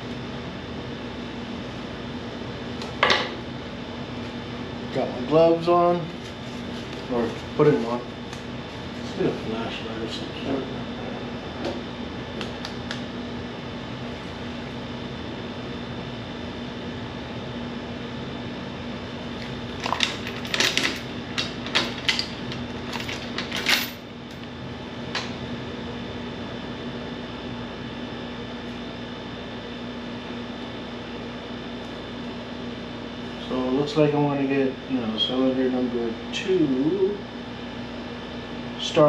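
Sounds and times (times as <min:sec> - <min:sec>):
mechanical hum: 0:00.0 - 0:39.0.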